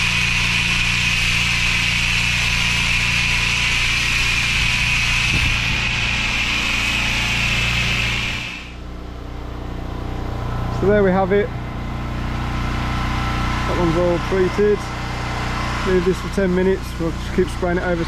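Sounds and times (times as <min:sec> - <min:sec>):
pressure washer jet hiss: 0:00.0 - 0:08.8
washer engine running: 0:00.0 - 0:18.0.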